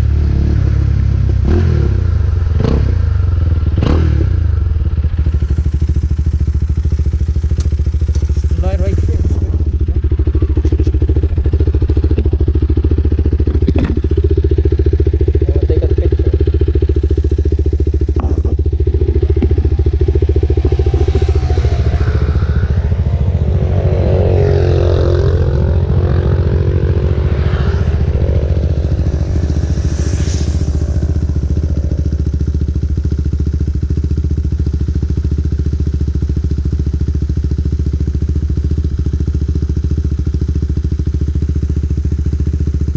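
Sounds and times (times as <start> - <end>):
motorcycle engine running steadily: 0.0 - 42.9
passing engine: 16.7 - 33.1.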